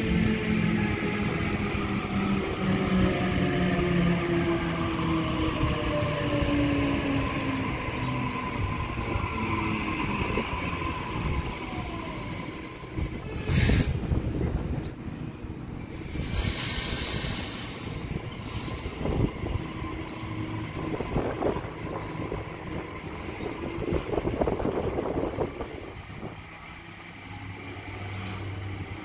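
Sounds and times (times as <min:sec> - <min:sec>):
train wheels rumbling on rails: 0:00.0 - 0:29.0
loud hiss: 0:13.4 - 0:14.1, 0:15.8 - 0:19.3.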